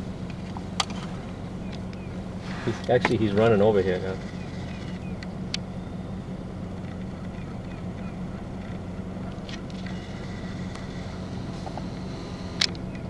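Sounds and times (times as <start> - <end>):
vehicle engine idling: 0.0 - 13.0
sharp clicks: 9.4 - 13.0.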